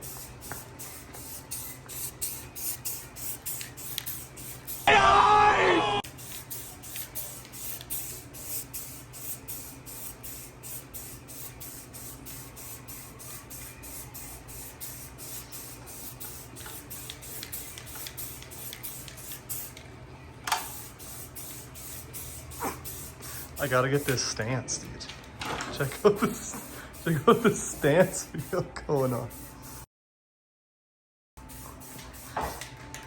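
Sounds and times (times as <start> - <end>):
spray paint can hissing bursts: 0.0 - 4.9, 6.0 - 19.8, 20.5 - 24.2, 25.8 - 29.9, 31.4 - 32.7
brief loud voice-like sound: 4.9 - 6.0.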